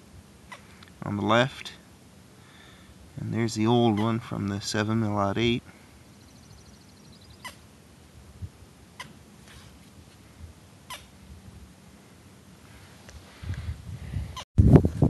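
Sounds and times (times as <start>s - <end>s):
bird chirping: 6.0s - 7.7s.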